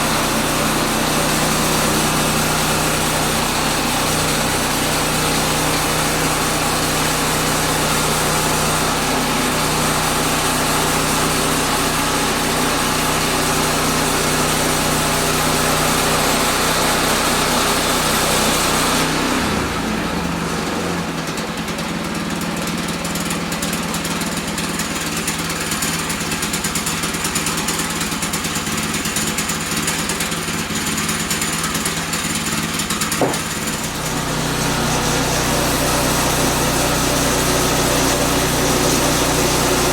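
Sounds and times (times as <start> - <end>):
small gasoline engine running: 0.0 - 39.9
sharp knock: 33.2 - 33.7.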